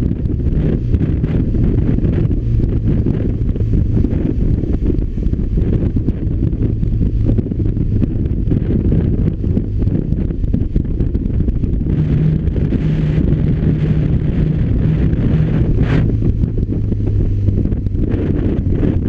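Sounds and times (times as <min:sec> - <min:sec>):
motorcycle engine running: 0:00.0 - 0:19.0
wind buffeting on microphone: 0:00.0 - 0:19.0.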